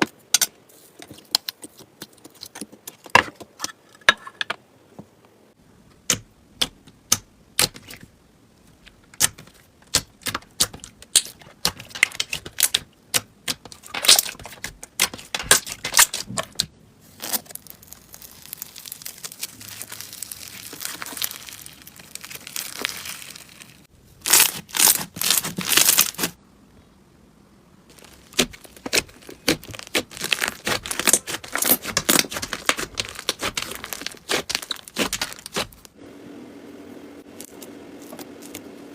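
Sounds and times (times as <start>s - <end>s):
slime clicking and popping: 28.0s - 35.8s.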